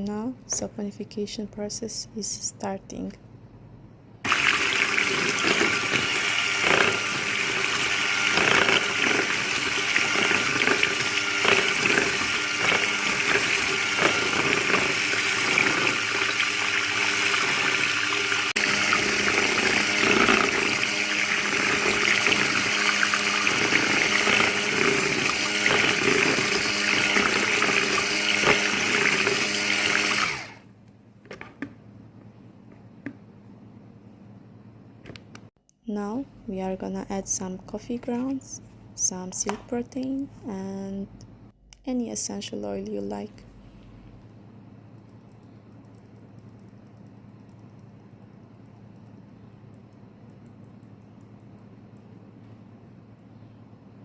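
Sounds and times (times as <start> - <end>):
hand mixer motor whine: 4.3 - 30.6
liquid churning: 4.3 - 30.6.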